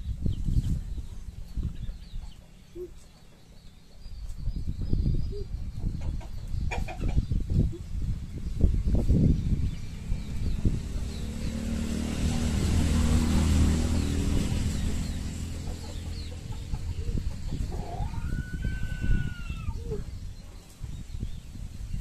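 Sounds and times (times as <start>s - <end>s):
low rumble: 7.4s - 17.8s.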